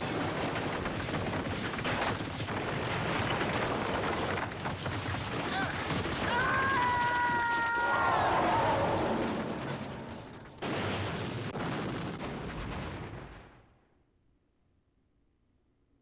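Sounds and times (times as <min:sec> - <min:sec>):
blasts and rumbling: 0:00.0 - 0:13.7.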